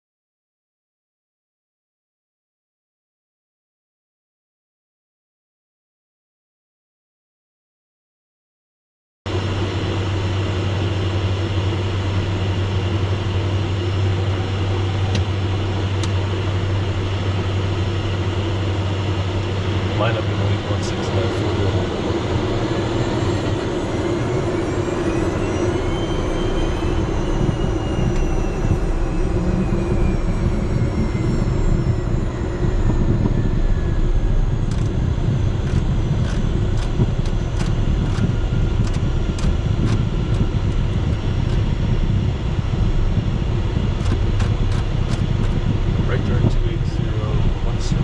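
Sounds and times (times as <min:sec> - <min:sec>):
jet cabin engine and airflow noise: 0:09.3 - 0:48.0
faint rising and falling tone: 0:19.4 - 0:39.3.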